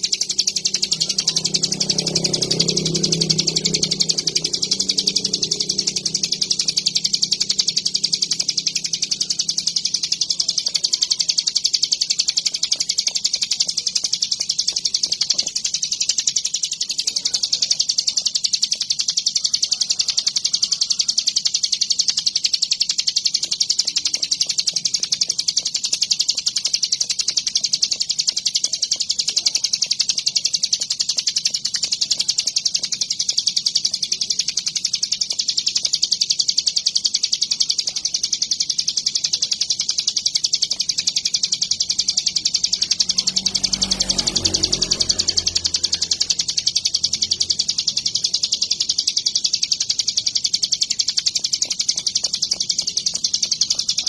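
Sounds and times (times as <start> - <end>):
low hum: 0.0 - 9.8
bird rapid chattering song: 0.0 - 54.0.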